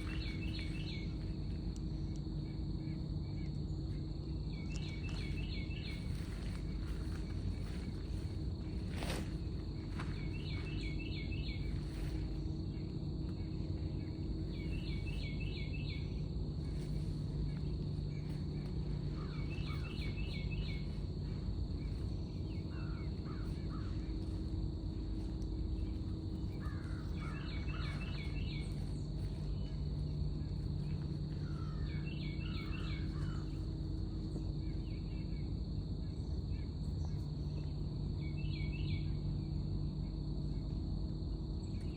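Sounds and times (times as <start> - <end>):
bird calling: 0.0 - 1.3, 14.5 - 33.7
high-pitched insect trill: 0.0 - 41.9.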